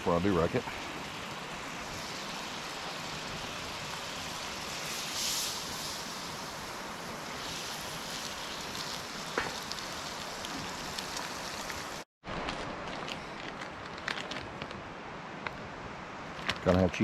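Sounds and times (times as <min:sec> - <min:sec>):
eggs sizzling in a skillet: 0:00.6 - 0:12.1.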